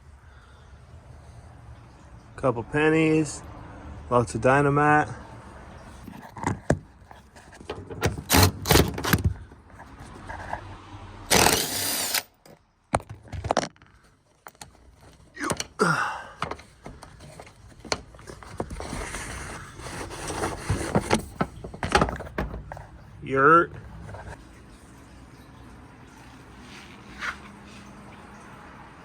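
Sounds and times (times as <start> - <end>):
car interior parts clattering: 6.1 - 9.9, 12.4 - 23.1.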